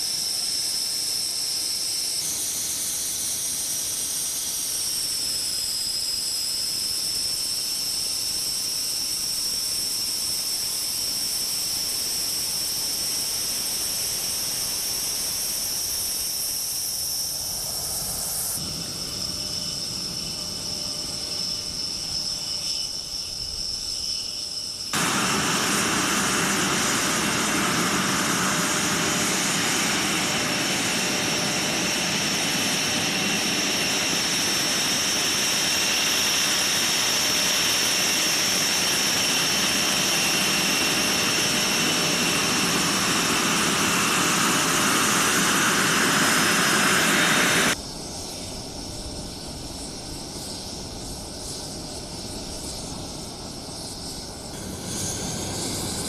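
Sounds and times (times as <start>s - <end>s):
jet engine turbine whine: 0.0s - 56.0s
jet engine roar: 13.9s - 23.7s, 24.8s - 56.0s.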